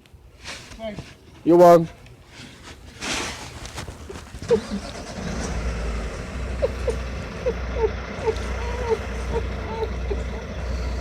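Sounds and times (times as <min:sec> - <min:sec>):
vehicle engine rumbling: 0:03.8 - 0:11.0.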